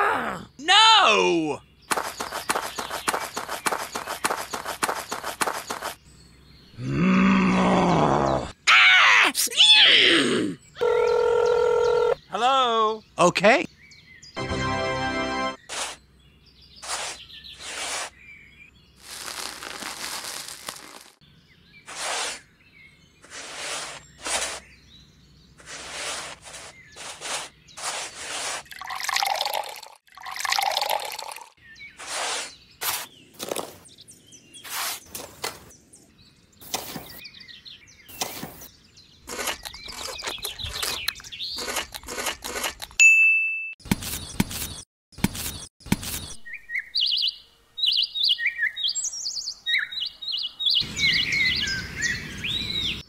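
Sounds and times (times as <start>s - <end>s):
metal shovel scraping sand: 15.6s - 16.0s, 16.8s - 18.2s, 21.9s - 22.5s, 23.2s - 24.8s, 25.6s - 28.7s, 32.0s - 33.2s, 34.6s - 35.2s
water splashing and gurgling: 28.6s - 31.5s.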